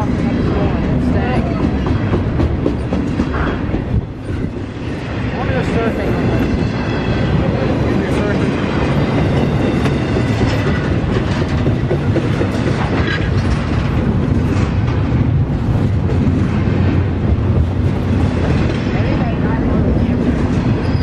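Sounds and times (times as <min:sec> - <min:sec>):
freight train rolling past: 0:00.0 - 0:21.0
wheels clicking over rail joints: 0:09.2 - 0:21.0.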